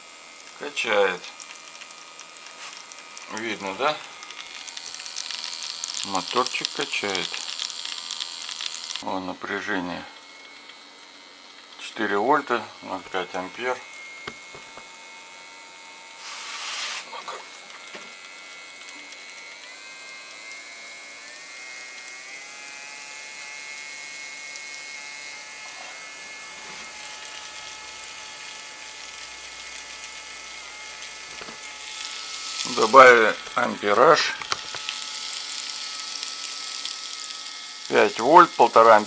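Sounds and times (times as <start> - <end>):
small electric pump motor whining: 0.0 - 39.0
short hiss: 16.2 - 17.1.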